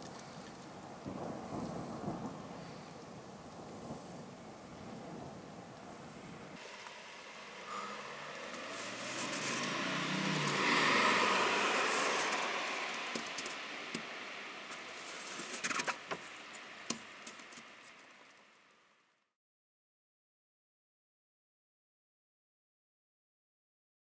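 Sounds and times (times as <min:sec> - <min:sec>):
car tyres hissing on wet road: 0:06.2 - 0:18.6.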